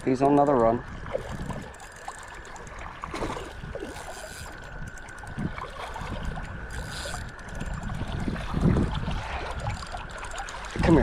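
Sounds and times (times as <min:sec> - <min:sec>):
creek water flowing: 0:00.1 - 0:11.0.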